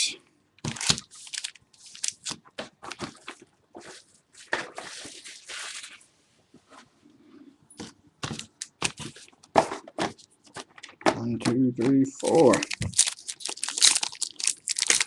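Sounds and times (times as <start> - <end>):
plastic packaging crinkling and tearing: 0.6 - 6.0, 12.1 - 15.0.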